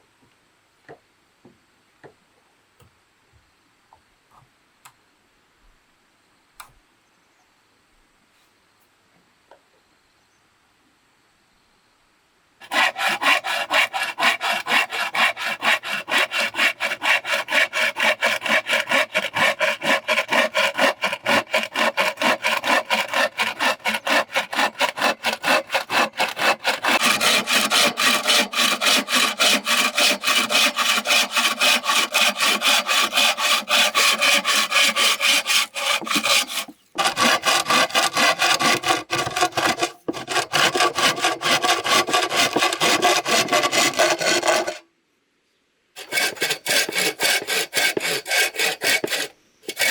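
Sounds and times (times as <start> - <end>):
hand saw cutting bamboo: 12.6 - 44.8, 46.0 - 49.9.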